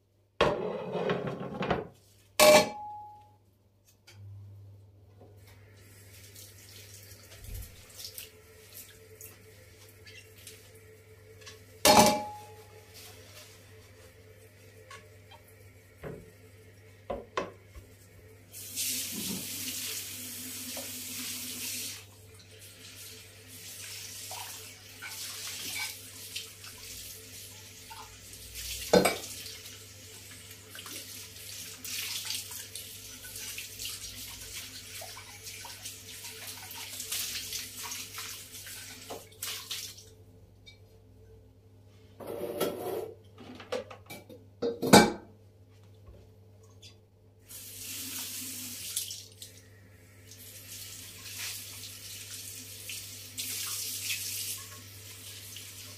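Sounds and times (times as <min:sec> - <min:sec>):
dishes clinking: 0:00.4 - 0:03.2, 0:11.8 - 0:12.6
tap running into sink: 0:19.0 - 0:19.6.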